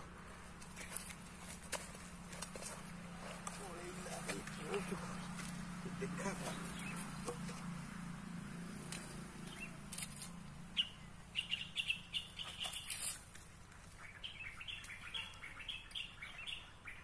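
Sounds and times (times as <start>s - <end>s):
small bird chirping: 6.4s - 7.6s, 9.4s - 13.2s, 13.9s - 17.0s.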